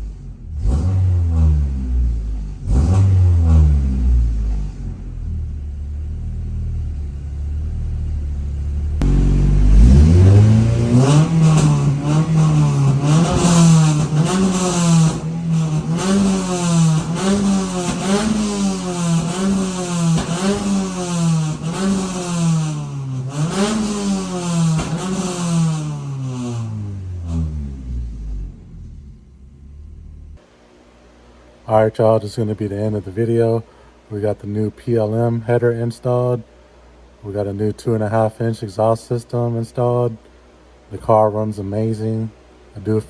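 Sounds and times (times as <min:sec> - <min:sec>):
car engine revving: 0:00.0 - 0:30.4.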